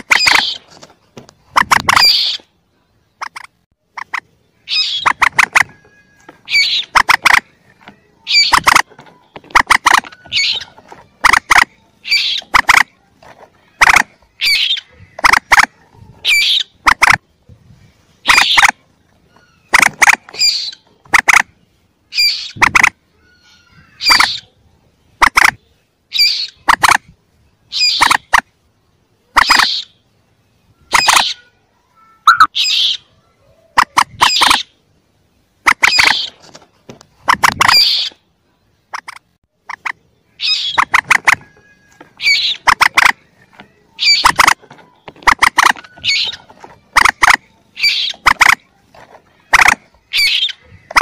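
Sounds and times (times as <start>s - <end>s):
moorhen chick calls: 0.0s - 0.7s, 1.4s - 17.3s, 18.1s - 28.5s, 29.2s - 30.1s, 30.7s - 31.6s, 32.2s - 34.8s, 35.6s - 36.4s, 37.1s - 51.0s.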